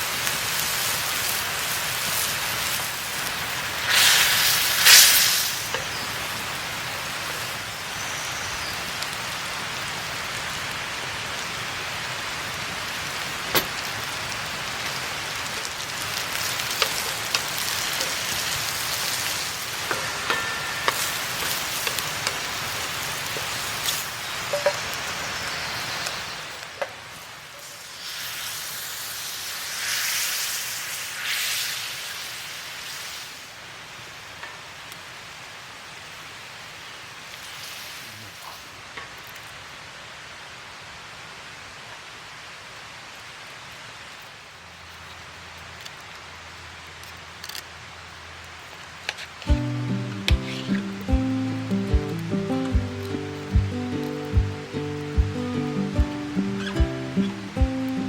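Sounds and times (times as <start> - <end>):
food sizzling in a pan: 0.0 - 34.9, 36.0 - 39.4, 49.4 - 58.0
pops and crackles: 2.2 - 6.0, 14.8 - 20.0, 49.1 - 58.0.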